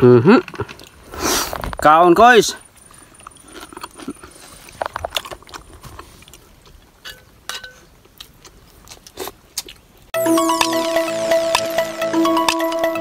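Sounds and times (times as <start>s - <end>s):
person chewing food: 0.4s - 1.6s, 2.8s - 10.1s
electronic music: 10.2s - 13.0s.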